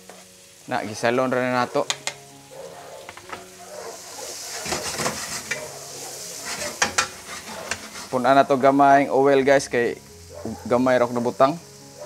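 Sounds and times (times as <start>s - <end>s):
vegetables sizzling in hot oil: 0.0s - 12.0s
wooden spatula scraping wok: 2.6s - 8.6s.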